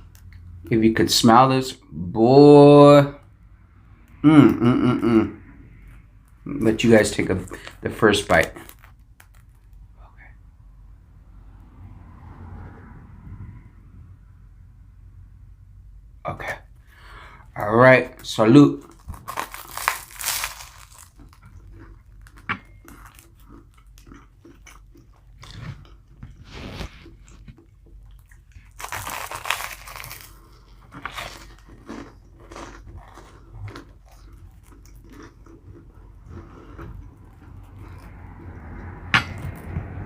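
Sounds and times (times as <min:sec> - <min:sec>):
chewing and biting sandwich: 0:05.8 - 0:10.0, 0:18.8 - 0:39.0.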